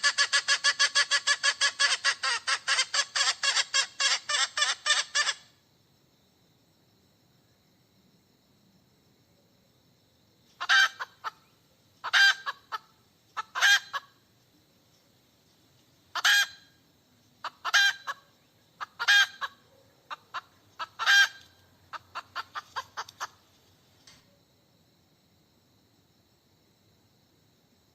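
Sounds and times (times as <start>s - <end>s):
hen squawking and clucking: 0.0s - 5.5s, 10.6s - 11.4s, 12.0s - 14.1s, 16.1s - 16.7s, 17.4s - 18.2s, 18.8s - 23.4s.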